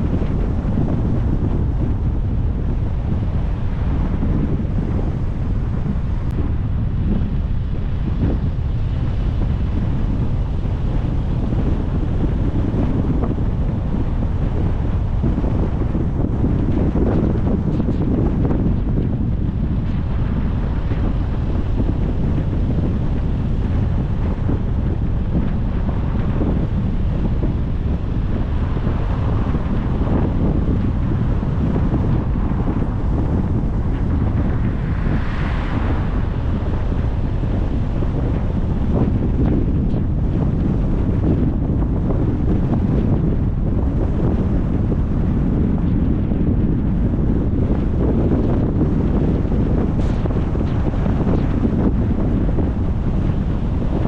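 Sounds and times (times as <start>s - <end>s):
wind buffeting microphone: 0.0s - 54.0s
road noise: 19.1s - 42.6s.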